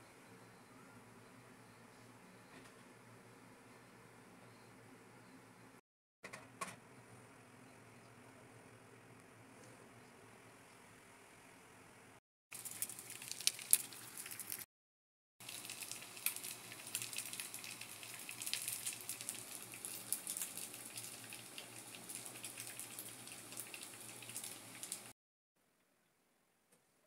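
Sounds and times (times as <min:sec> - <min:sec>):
meat frying in hot oil: 0:12.5 - 0:14.7, 0:15.4 - 0:25.2.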